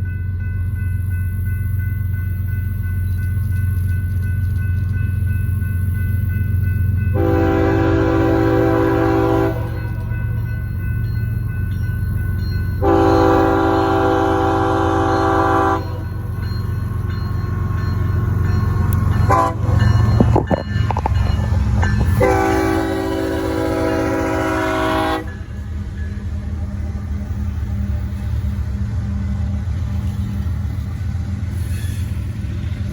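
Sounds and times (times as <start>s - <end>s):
locomotive rumble: 0.0s - 32.9s
locomotive horn blasts: 7.2s - 10.1s, 12.8s - 16.3s, 19.2s - 20.4s, 22.0s - 25.5s.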